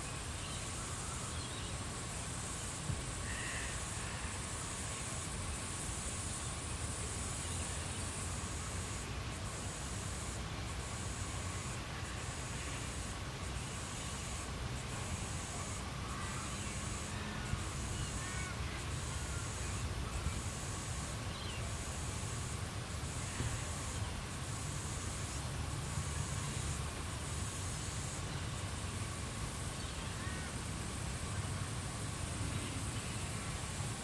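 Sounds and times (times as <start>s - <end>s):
low rumble of wind: 0.0s - 34.0s
insects trilling: 0.1s - 34.0s
faint bird calls: 3.2s - 4.5s.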